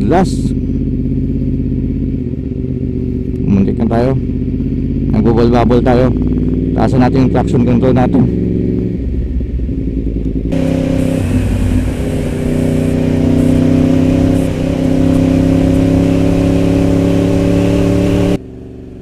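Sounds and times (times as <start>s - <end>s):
motorcycle engine running: 0.0s - 19.0s
wind rushing: 9.0s - 18.4s.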